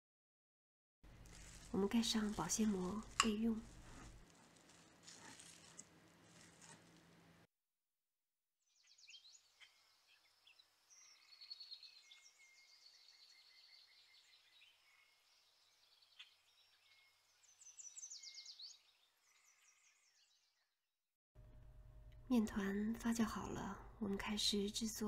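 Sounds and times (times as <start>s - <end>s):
small birds chirping and trilling: 8.7s - 20.8s.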